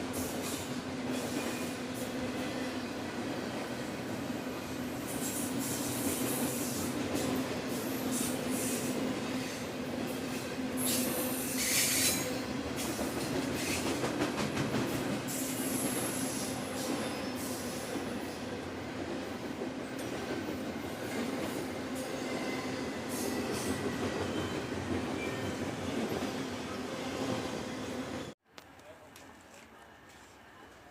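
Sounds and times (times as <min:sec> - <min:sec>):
train rolling on rails: 0:00.0 - 0:28.4
train wheel squeal: 0:00.2 - 0:01.8, 0:10.8 - 0:13.9, 0:15.3 - 0:17.9, 0:22.0 - 0:28.3.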